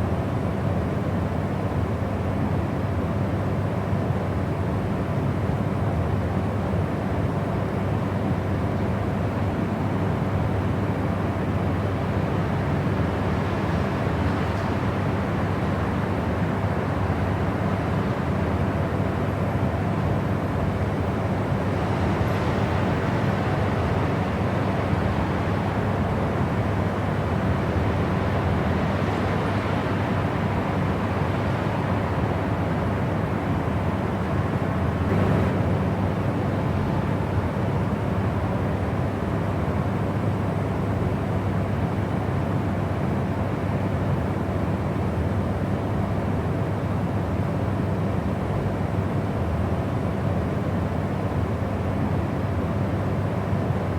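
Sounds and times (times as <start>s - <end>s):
deep rushing white noise: 35.1s - 36.4s.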